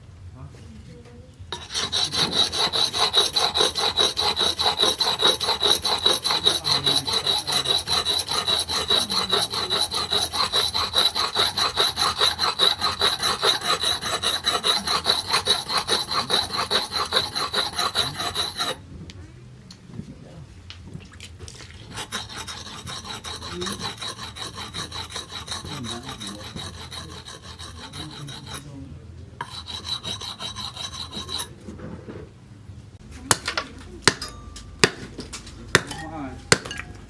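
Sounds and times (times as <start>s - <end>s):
hand file rasping: 1.5s - 18.8s, 21.8s - 28.8s, 29.4s - 31.6s, 35.7s - 36.7s
steady high ring: 34.2s - 34.8s.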